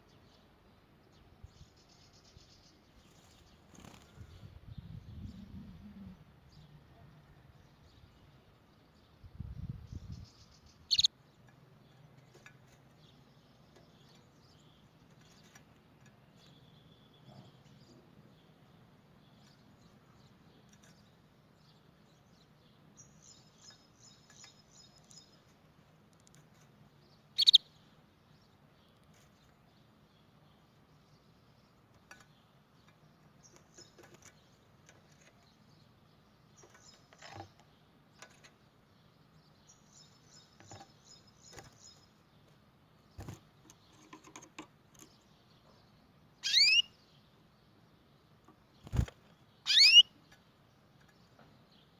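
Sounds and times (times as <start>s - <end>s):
canary chirping: 10.4s - 11.2s, 27.3s - 27.8s, 45.0s - 47.3s, 48.8s - 50.3s
faint bird trills: 10.9s - 11.1s, 27.4s - 27.7s, 46.4s - 47.0s, 48.8s - 50.2s.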